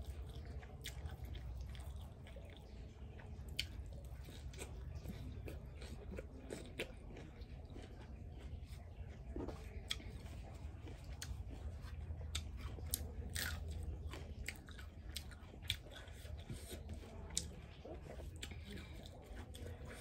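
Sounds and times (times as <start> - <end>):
low steady hum: 0.0 - 20.0
person chewing and biting food: 0.0 - 20.0.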